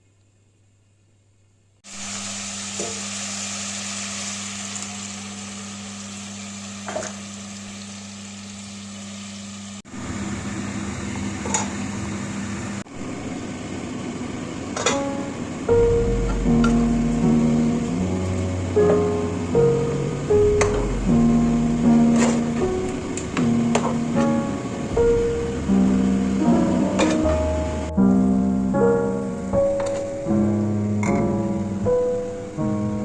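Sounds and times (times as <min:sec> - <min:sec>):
food sizzling in a pot: 0:01.8 - 0:10.2
steady low hum: 0:15.5 - 0:33.0.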